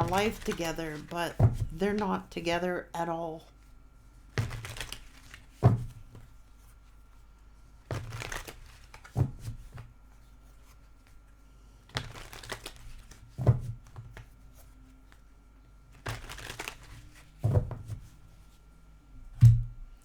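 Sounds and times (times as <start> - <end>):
cards rustling while shuffled: 0.0 - 2.2, 4.2 - 6.2, 7.9 - 9.8, 11.9 - 15.2, 15.9 - 17.7.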